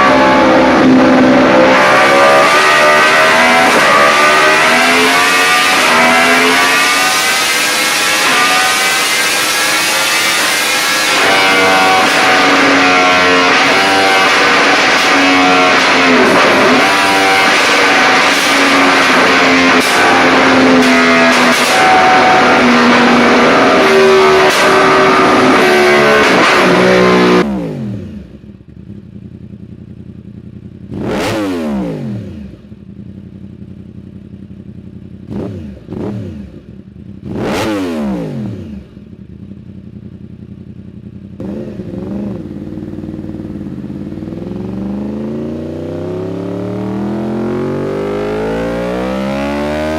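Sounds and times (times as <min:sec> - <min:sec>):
motorcycle engine revving: 0:00.0 - 0:49.9
motorcycle engine idling: 0:28.1 - 0:31.1, 0:32.3 - 0:37.3, 0:38.8 - 0:44.9.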